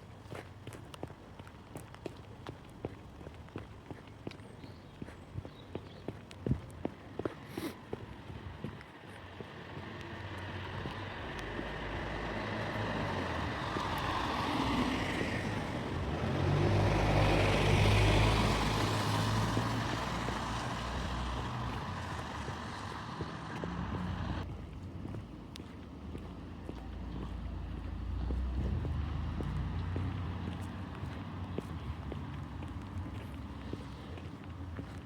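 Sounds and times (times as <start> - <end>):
vehicle passing by: 9.4 - 24.5, 26.9 - 35.0.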